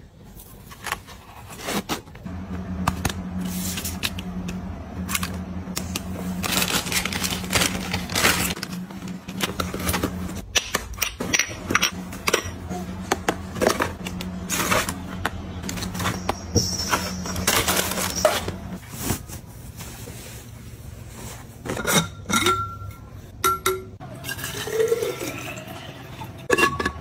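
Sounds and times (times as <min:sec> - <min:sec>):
low steady hum: 0:02.2 - 0:25.4
small hard objects clinking: 0:15.6 - 0:18.6.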